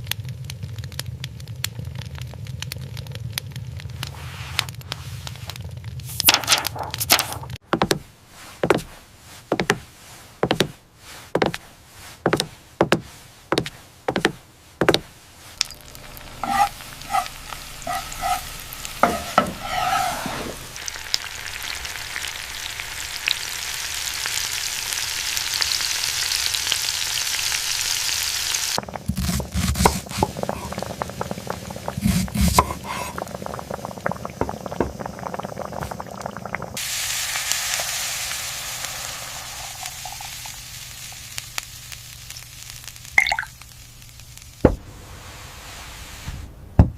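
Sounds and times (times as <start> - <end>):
food sizzling in a pan: 15.5 - 46.3
stirring and clattering in a pan: 16.4 - 20.8.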